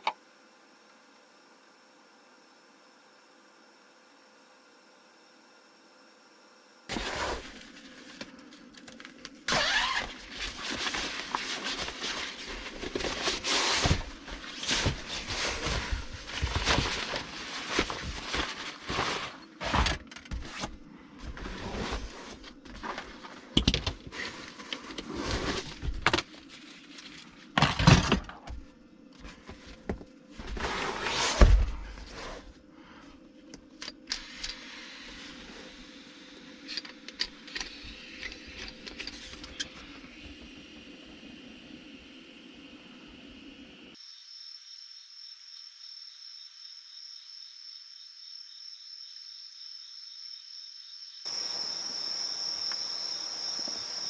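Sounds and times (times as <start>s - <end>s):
irregular rustling: 6.9s - 27.6s.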